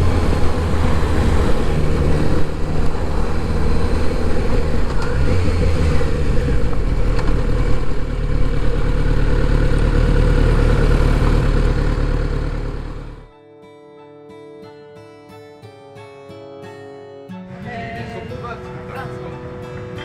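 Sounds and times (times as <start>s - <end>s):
motorcycle engine running: 0.0s - 13.3s
wind and road noise: 0.0s - 13.3s.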